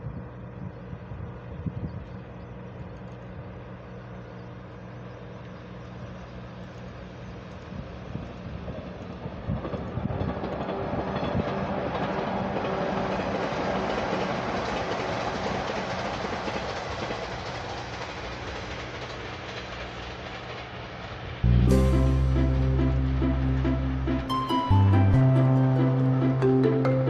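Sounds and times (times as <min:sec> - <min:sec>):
train wheels rumbling on rails: 0:02.2 - 0:27.0
electric train passing: 0:04.6 - 0:27.0.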